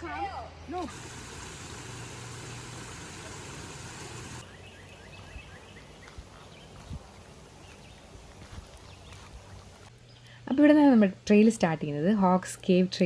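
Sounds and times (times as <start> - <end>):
bird chirping: 0.6 - 9.9
car road noise with hum: 0.8 - 8.6.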